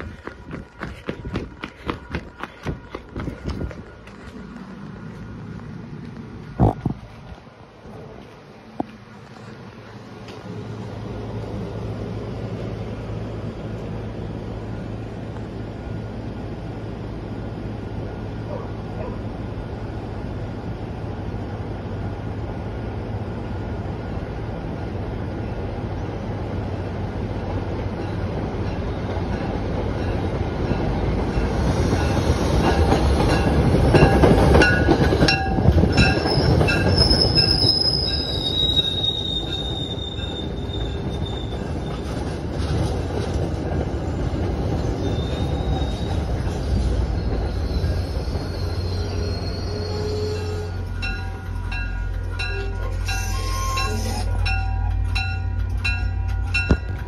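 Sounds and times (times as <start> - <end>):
train rumbling past: 0.0 - 57.0
high-pitched wheel squeals: 35.9 - 42.3, 44.9 - 51.4, 52.4 - 54.8
wheels clicking over rail joints: 51.0 - 57.0.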